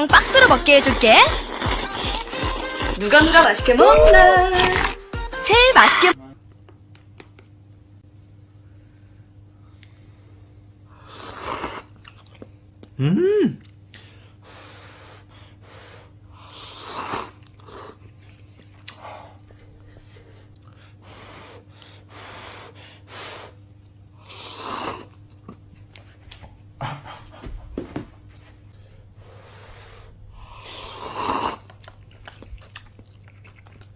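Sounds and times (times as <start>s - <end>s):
slurping noodles: 0.1s - 5.0s, 11.0s - 12.2s, 16.5s - 18.0s, 24.2s - 25.2s, 30.6s - 31.8s
faint steady hum: 3.4s - 33.9s
chewing with small clicks: 12.0s - 13.0s, 17.4s - 19.7s, 20.5s - 20.8s, 23.6s - 24.1s, 31.6s - 33.9s.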